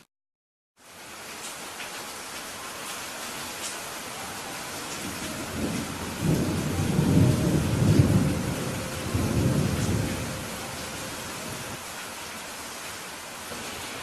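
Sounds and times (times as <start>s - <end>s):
rain hiss: 0.8s - 14.0s
thunder rumble: 4.8s - 11.8s.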